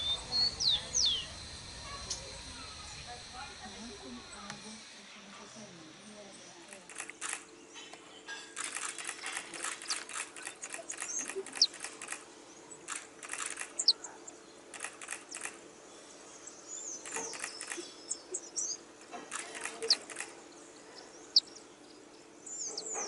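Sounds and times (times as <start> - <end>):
bird dry ticking calls: 0.0 - 2.4, 6.4 - 23.0
high-pitched bird chirps: 0.0 - 3.0, 9.8 - 11.9, 12.7 - 14.4, 16.4 - 18.8, 22.5 - 23.0.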